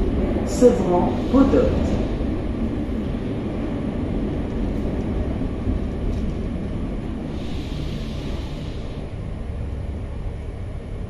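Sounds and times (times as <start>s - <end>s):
train wheels rumbling on rail: 0.0s - 11.0s
even hiss: 0.6s - 2.3s, 7.2s - 9.2s.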